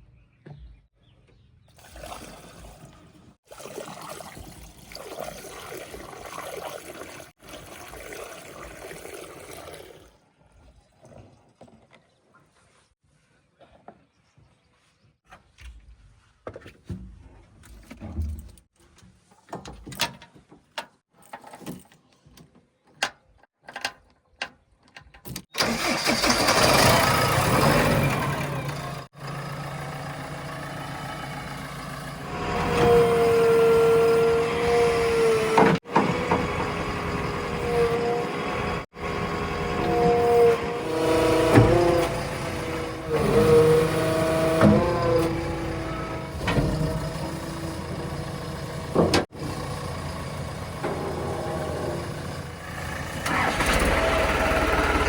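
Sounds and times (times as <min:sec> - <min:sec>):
heavy diesel engine running: 0:25.6 - 0:55.0.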